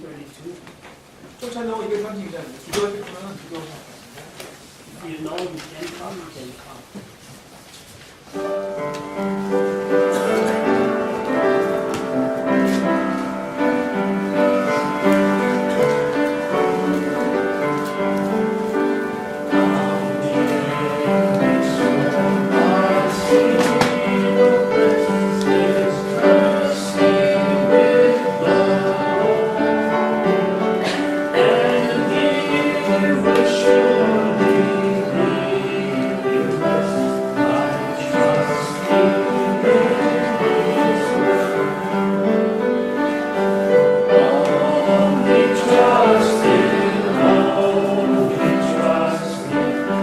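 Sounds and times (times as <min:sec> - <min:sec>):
church hymn music: 0:00.0 - 0:50.0.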